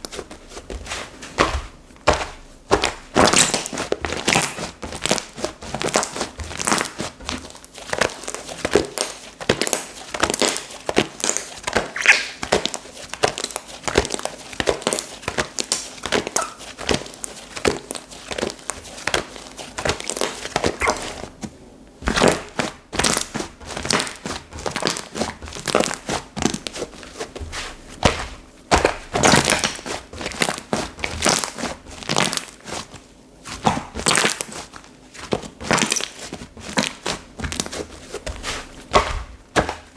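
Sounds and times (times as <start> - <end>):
slime squished by hand: 11.3 - 12.7, 20.0 - 21.4.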